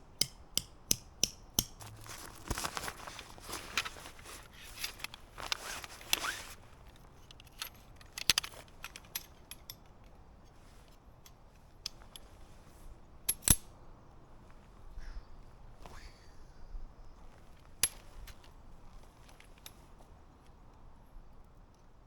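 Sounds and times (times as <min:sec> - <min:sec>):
camp gear rustling: 0:01.8 - 0:13.5, 0:14.3 - 0:16.2, 0:17.2 - 0:20.8
small clicks and clinks: 0:03.2 - 0:12.4, 0:13.3 - 0:13.7, 0:17.8 - 0:20.8.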